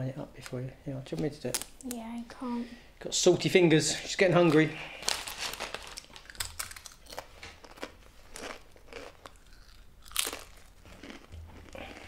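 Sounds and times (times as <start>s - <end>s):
crisps being chewed: 5.0s - 12.0s.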